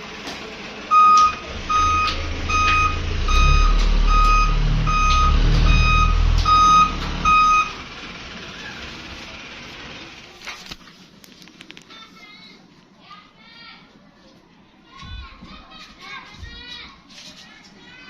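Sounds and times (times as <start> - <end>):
low engine rumble: 0.0 - 11.2
short electronic beeps: 0.9 - 7.8.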